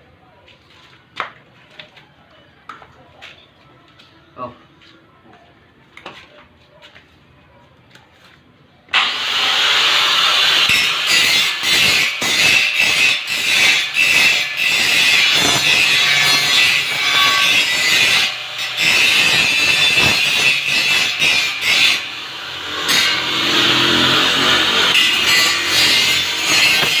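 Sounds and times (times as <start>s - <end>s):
angle grinder grinding steel: 9.0s - 27.0s.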